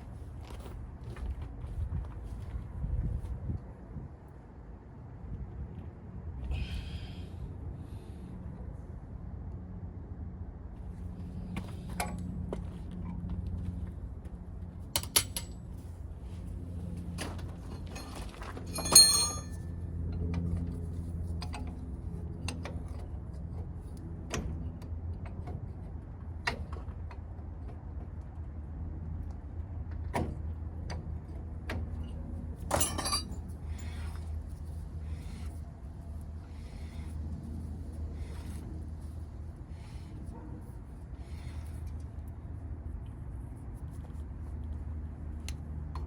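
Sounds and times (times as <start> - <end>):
metallic clinks of hand tools: 18.7 - 19.6, 32.7 - 33.4
steady low hum: 32.0 - 46.0.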